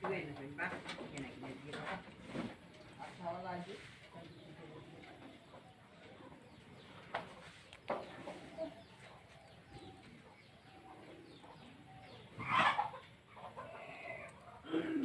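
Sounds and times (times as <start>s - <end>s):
birds calling: 4.4s - 15.0s.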